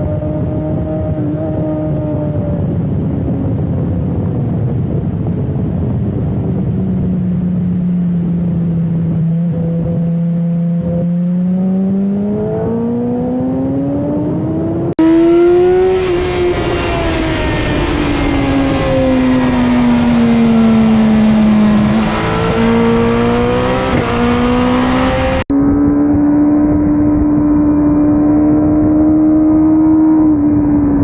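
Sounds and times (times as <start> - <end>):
wind rush: 0.0 - 10.2, 10.8 - 31.0
motorcycle engine revving hard: 9.2 - 31.0.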